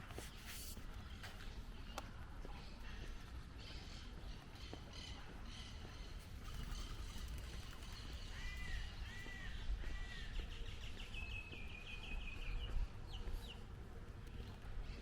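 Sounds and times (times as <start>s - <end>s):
songbirds chirping and trilling: 3.6s - 15.0s.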